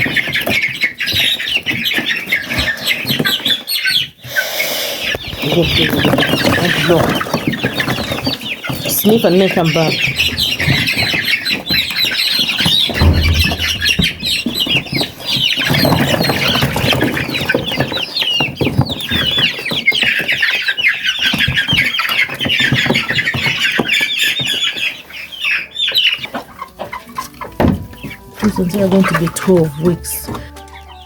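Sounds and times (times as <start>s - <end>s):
young chickens peeping: 0.0s - 31.0s
dull low thump: 12.9s - 14.7s.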